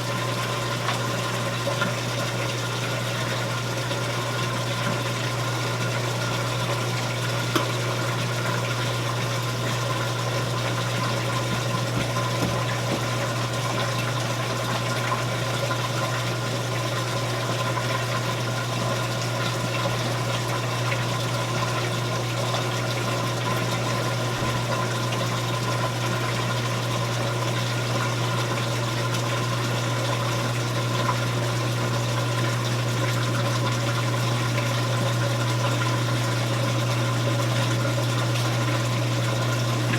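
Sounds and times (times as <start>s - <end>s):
washing machine motor humming: 0.0s - 39.9s
water rushing through pump: 0.0s - 39.9s.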